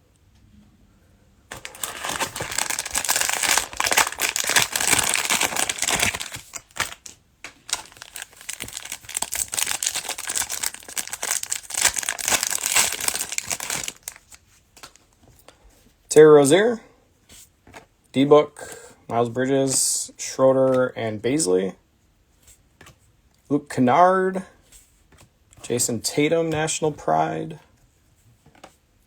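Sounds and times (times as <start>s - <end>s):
cellophane wrapper crinkling: 1.5s - 15.1s.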